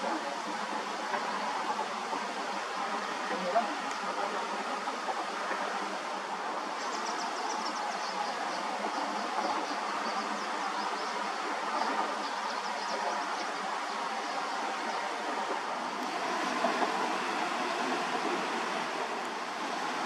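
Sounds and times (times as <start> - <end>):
train wheels on rails: 14.8 - 20.0.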